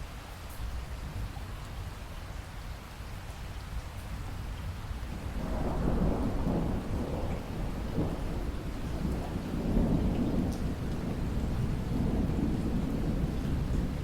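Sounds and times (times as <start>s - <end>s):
heavy rain: 0.0s - 14.0s
thunder rumbling: 5.2s - 14.0s.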